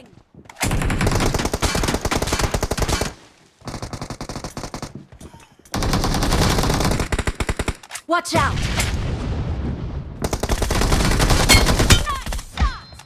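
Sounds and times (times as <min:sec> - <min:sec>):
rapid automatic gunfire: 0:00.6 - 0:04.9, 0:05.8 - 0:07.8, 0:10.2 - 0:12.0.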